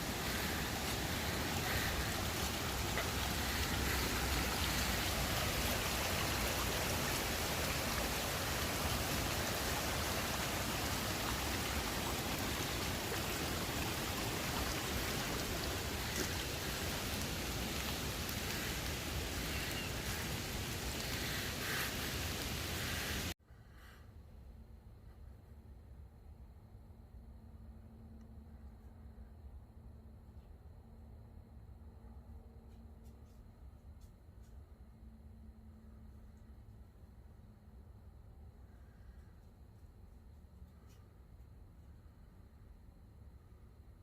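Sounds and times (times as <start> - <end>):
rushing water: 0.0 - 23.4.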